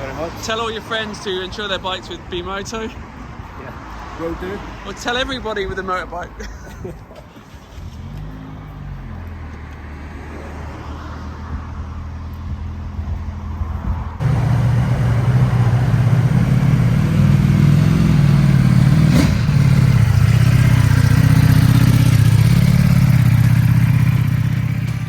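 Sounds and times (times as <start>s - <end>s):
motorcycle engine running loudly: 14.2s - 25.0s.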